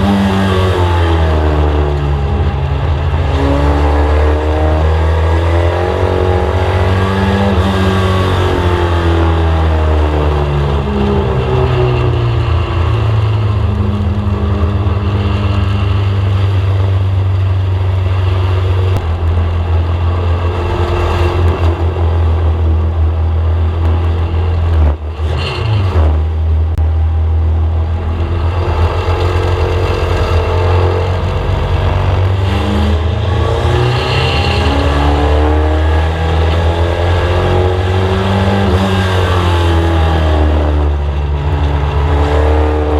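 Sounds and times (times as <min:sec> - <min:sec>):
race car engine revving: 0:00.0 - 0:42.9.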